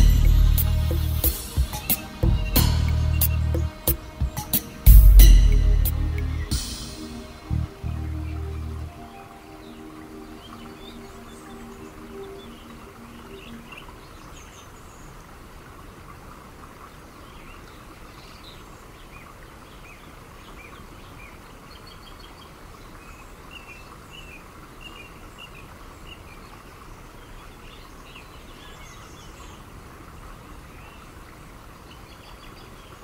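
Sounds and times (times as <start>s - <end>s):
low music note: 0.0s - 3.9s, 4.8s - 13.7s
birds chirping: 0.0s - 29.8s
steady background hiss: 0.0s - 33.0s.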